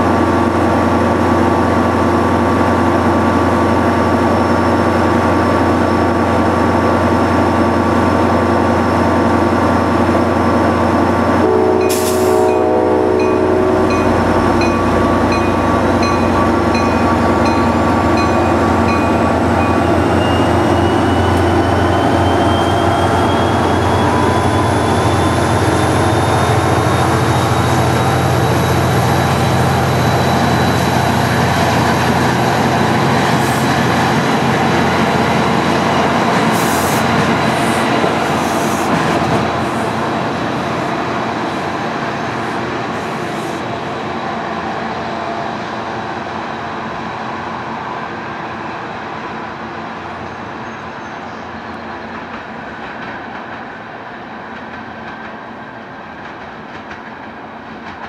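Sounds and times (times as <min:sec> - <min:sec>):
train low hum: 0:00.0 - 0:58.0
brief air hiss: 0:11.9 - 0:12.4.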